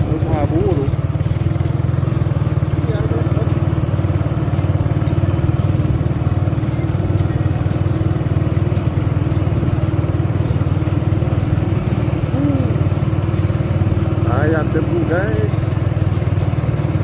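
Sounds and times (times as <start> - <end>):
diesel truck engine droning: 0.0 - 17.0.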